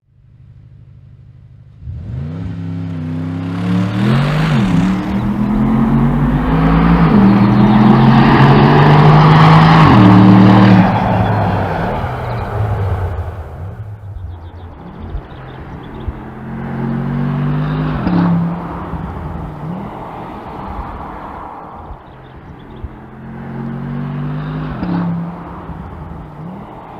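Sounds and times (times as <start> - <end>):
car engine revving: 1.7 - 21.5.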